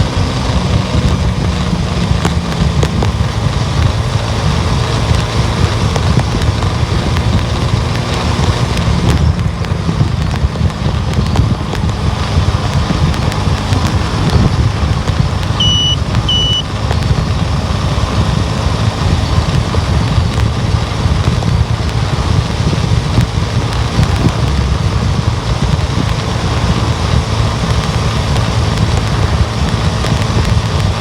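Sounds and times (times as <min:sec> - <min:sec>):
car driving on road: 0:00.0 - 0:31.0
short high beeps: 0:15.6 - 0:16.7.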